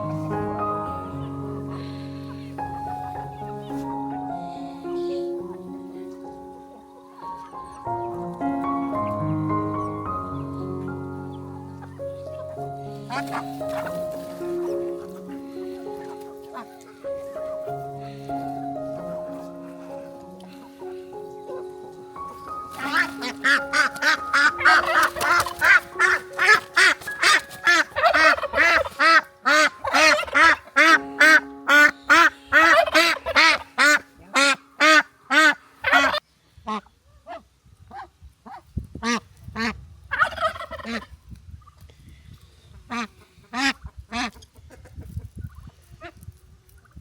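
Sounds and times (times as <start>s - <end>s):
poultry calling: 0.0s - 6.0s, 9.8s - 41.1s.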